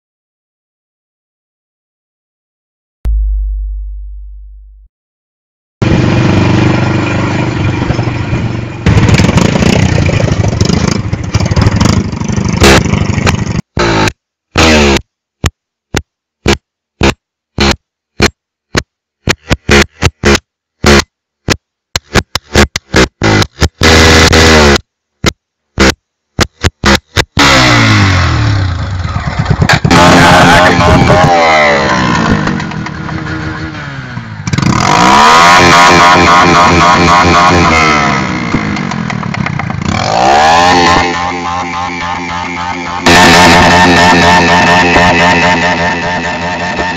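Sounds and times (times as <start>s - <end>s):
motorcycle engine revving: 5.8s - 15.0s, 19.3s - 21.1s, 22.2s - 24.9s, 25.8s - 46.9s
exhaust popping and crackling: 15.4s - 28.0s, 28.8s - 33.7s, 38.4s - 40.0s.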